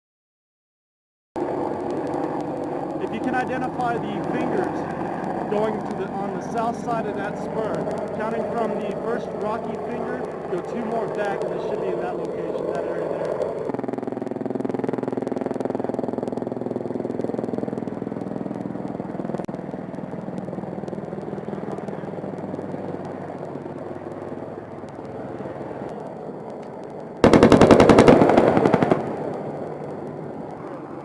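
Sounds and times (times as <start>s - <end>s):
helicopter engine and rotor: 1.4s - 31.0s
rapid cannon fire: 27.2s - 29.6s.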